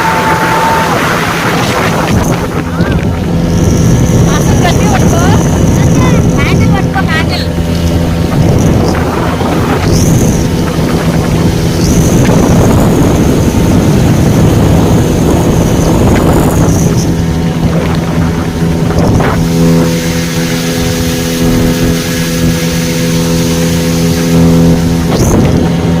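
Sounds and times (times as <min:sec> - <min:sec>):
speedboat engine running: 0:00.0 - 0:26.0
water rushing: 0:00.0 - 0:26.0
wind on microphone: 0:00.0 - 0:26.0.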